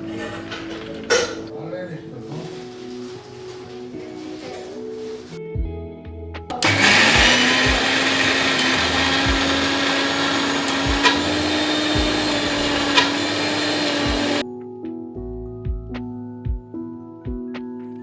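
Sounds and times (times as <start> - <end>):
soft background music: 0.0 - 18.0
electric mixer grinder running: 6.5 - 14.4.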